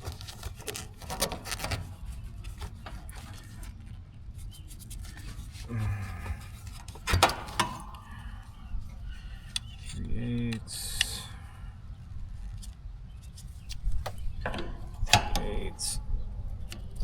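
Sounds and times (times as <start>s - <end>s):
rubbing and scraping: 0.0s - 11.5s
copper tubing clicks and knocks: 6.3s - 8.2s, 13.7s - 15.6s.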